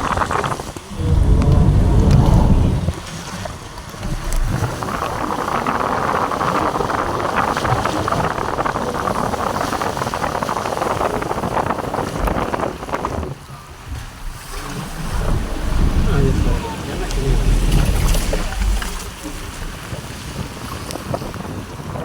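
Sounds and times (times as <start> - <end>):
wind buffeting microphone: 0.0 - 22.0
running water: 0.7 - 3.4, 13.1 - 21.4
rain rushing: 0.8 - 3.2, 13.8 - 20.7.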